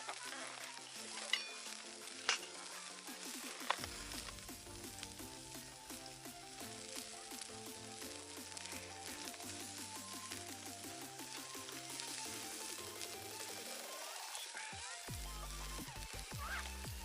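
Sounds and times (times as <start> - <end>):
sharp crackling pops: 0.0 - 17.0
sizzling hiss: 0.0 - 17.0
soft background music: 0.0 - 17.0.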